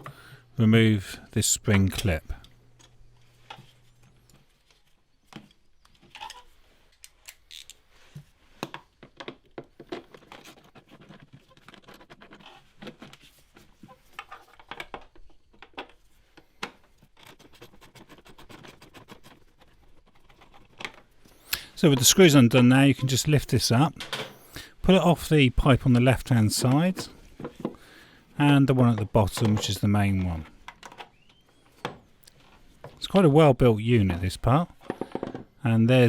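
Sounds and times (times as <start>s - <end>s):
hand tools clicking and scraping: 8.6s - 23.2s, 24.2s - 32.6s.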